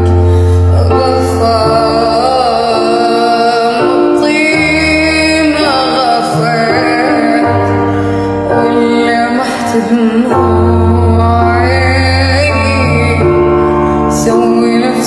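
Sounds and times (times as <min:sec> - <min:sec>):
person singing ornamented melody: 0:00.0 - 0:07.8, 0:08.5 - 0:15.0.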